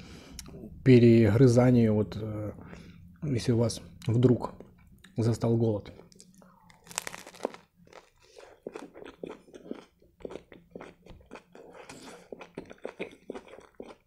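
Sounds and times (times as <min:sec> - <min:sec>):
open-mouthed chewing: 0:06.0 - 0:14.0
biting into a wrap: 0:06.7 - 0:14.0
crunching of toasted bread: 0:06.7 - 0:14.0.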